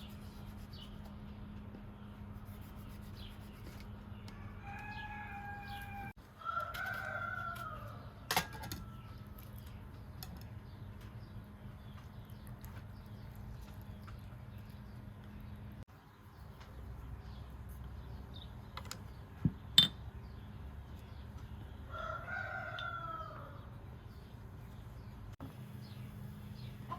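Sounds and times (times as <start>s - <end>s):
rooster crowing: 4.3s - 9.2s, 21.9s - 23.7s.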